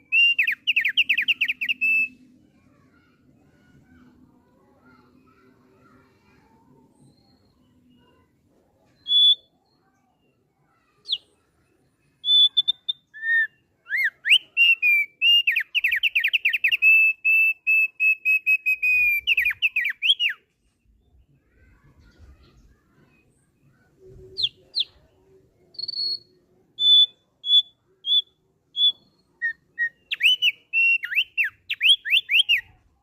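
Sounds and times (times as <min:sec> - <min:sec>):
bird whistling and trilling: 0:00.0 - 0:02.2, 0:09.0 - 0:09.5, 0:12.2 - 0:20.4, 0:24.3 - 0:25.1, 0:25.7 - 0:32.8.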